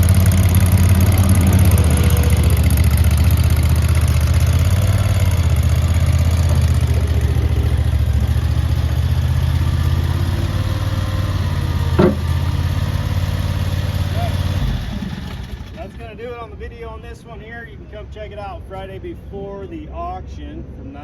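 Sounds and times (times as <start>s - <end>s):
loader engine idling: 0.0s - 16.4s
short knock: 12.0s - 12.4s.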